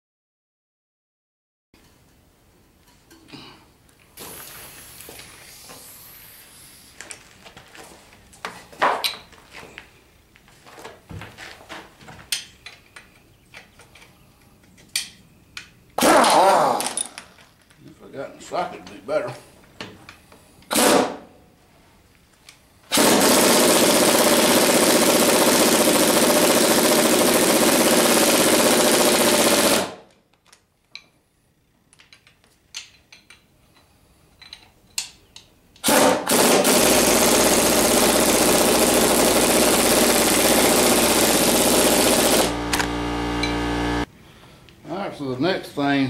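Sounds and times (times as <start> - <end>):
tools and bolts clinking: 12.3 - 17.5, 31.9 - 35.5
impact wrench hammering: 35.8 - 44.1.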